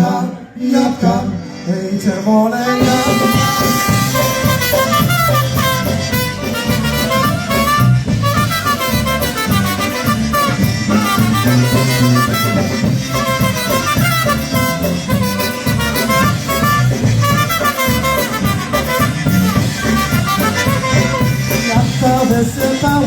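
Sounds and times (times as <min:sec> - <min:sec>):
polka band playing: 0:00.8 - 0:23.0.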